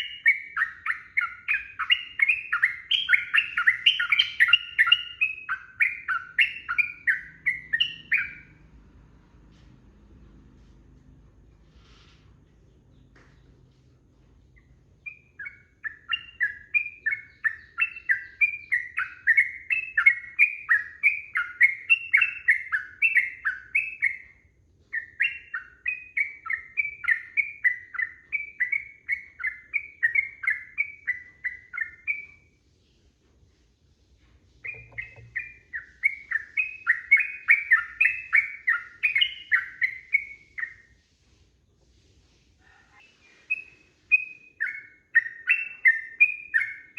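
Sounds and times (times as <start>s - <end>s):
bird chattering song: 0.0s - 8.6s, 14.5s - 32.5s, 34.6s - 40.9s, 42.8s - 46.9s.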